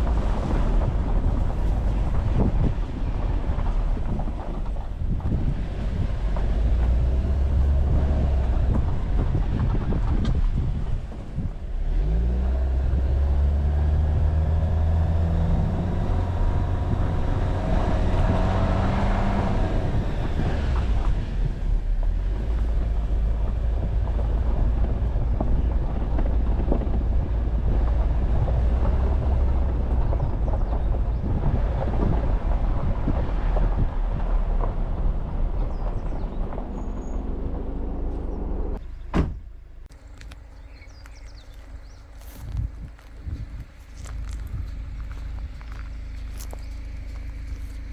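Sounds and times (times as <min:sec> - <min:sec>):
car engine drone: 0:00.0 - 0:47.9
tyres crackling on loose surface: 0:39.9 - 0:47.9.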